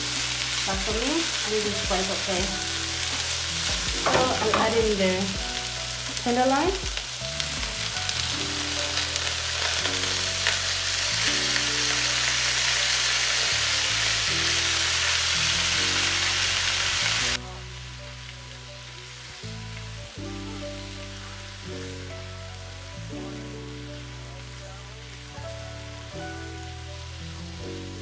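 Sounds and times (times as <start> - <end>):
background music: 0.0 - 28.0
meat and vegetables sizzling: 0.0 - 28.0.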